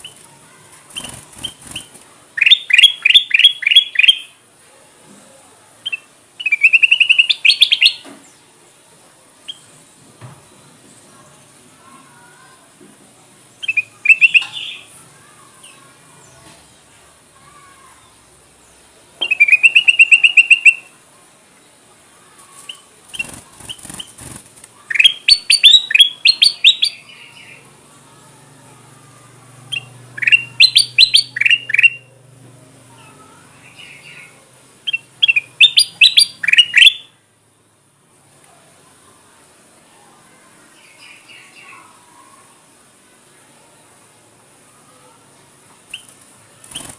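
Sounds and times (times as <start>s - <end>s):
bulbul sharp chattering calls: 0.9s - 4.3s, 13.6s - 14.9s, 19.2s - 20.9s, 22.7s - 27.6s, 29.7s - 32.1s, 33.7s - 37.1s, 45.9s - 46.9s.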